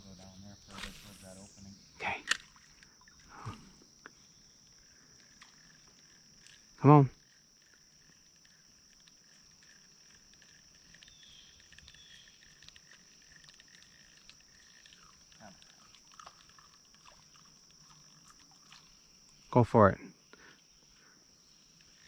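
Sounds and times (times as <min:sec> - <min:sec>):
high insect trill: 0:00.0 - 0:22.0
low steady frog call: 0:00.0 - 0:22.0
light ticks: 0:07.2 - 0:18.1.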